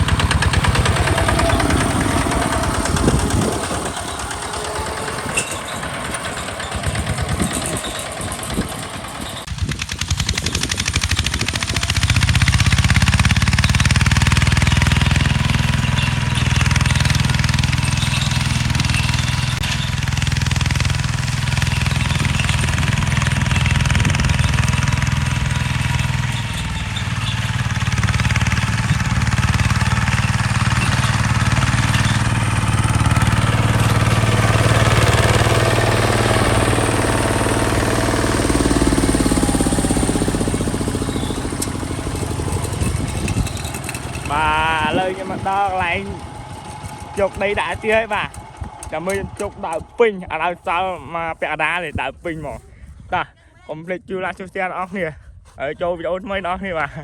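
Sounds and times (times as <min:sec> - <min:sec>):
tractor diesel engine knocking: 0:00.0 - 0:52.5.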